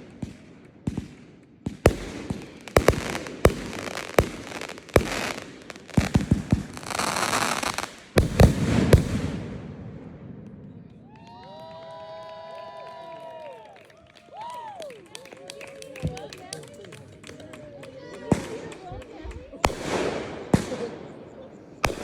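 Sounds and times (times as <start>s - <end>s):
fireworks bursting: 0.0s - 11.2s, 18.3s - 22.0s
fireworks crackling: 0.0s - 11.2s, 16.0s - 22.0s
loud fireworks bangs: 0.0s - 11.2s, 18.3s - 22.0s.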